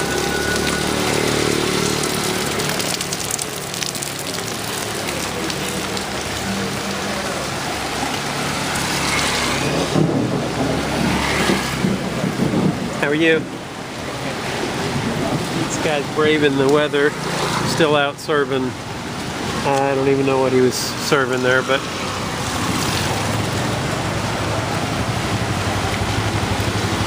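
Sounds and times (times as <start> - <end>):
heavy rain on street: 0.0 - 27.0.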